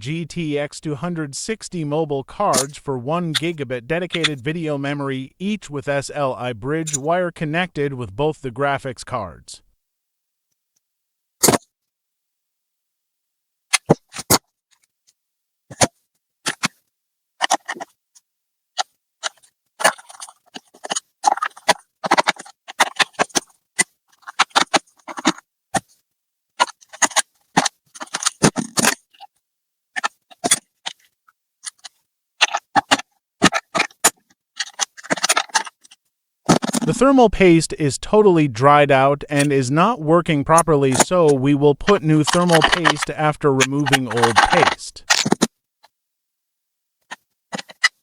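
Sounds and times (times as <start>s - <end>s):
tools clicking and scraping parts: 41.8s - 43.1s, 43.8s - 45.5s, 47.5s - 48.0s.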